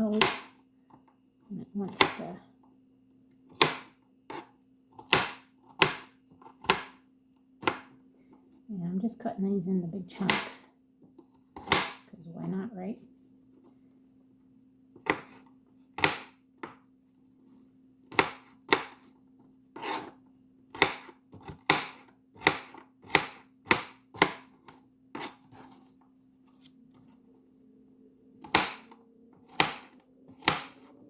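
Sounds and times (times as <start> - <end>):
knife chopping vegetables: 0.0 - 0.6, 3.5 - 7.0, 7.6 - 7.9, 11.5 - 12.1, 15.0 - 16.8, 18.0 - 19.1, 19.8 - 25.9, 28.4 - 30.9
faint steady hum: 0.0 - 31.0.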